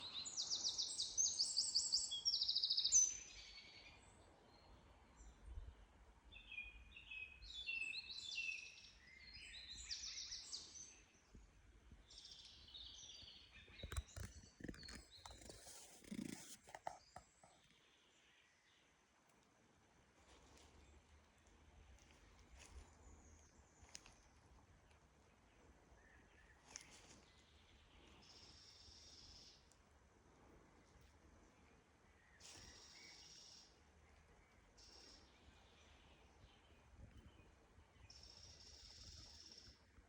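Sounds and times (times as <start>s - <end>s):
songbirds singing: 0.0s - 19.2s, 20.5s - 40.0s
rustling: 13.8s - 17.6s.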